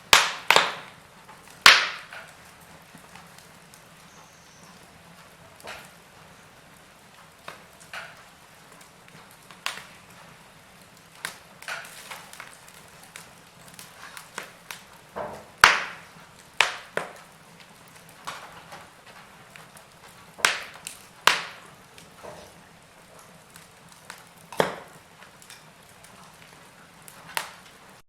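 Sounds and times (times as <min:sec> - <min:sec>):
wood fire crackling and popping: 0:00.0 - 0:28.0.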